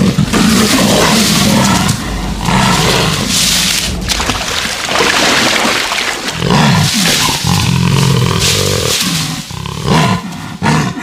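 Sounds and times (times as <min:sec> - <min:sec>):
jaguar growling: 0:00.0 - 0:04.1, 0:06.4 - 0:11.0.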